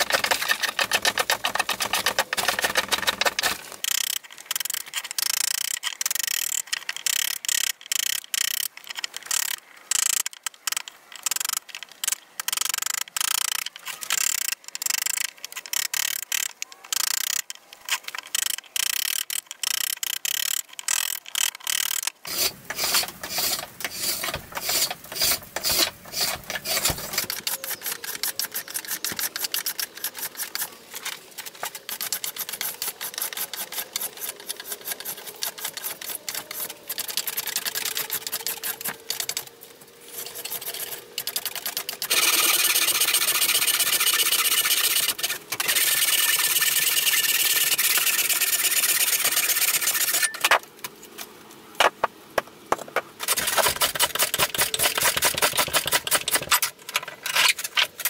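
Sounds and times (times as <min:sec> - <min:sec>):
edged tool shaving wood: 0:00.0 - 0:03.8, 0:22.3 - 0:50.3, 0:53.2 - 0:56.7.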